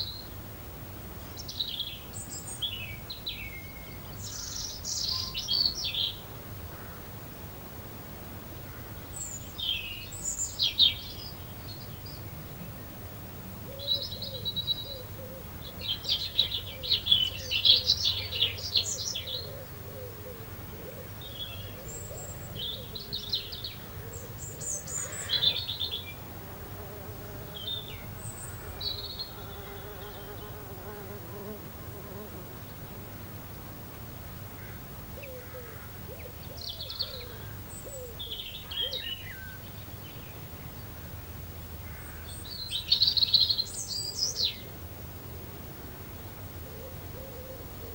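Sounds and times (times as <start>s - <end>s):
small birds chirping and singing: 1.2s - 6.2s, 9.0s - 12.8s, 13.7s - 20.2s, 20.8s - 26.2s, 27.4s - 31.1s, 36.1s - 41.0s, 42.1s - 44.7s.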